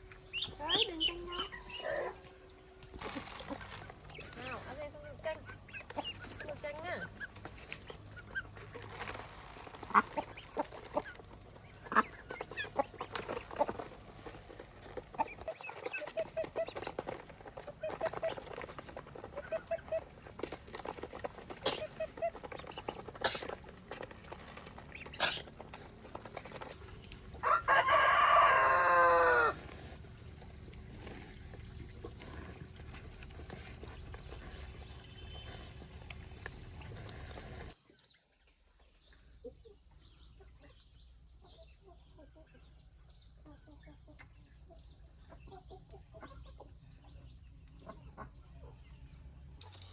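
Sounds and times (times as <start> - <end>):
chickens clucking: 0.0 - 37.8, 39.2 - 49.2
rooster crowing: 27.4 - 29.6.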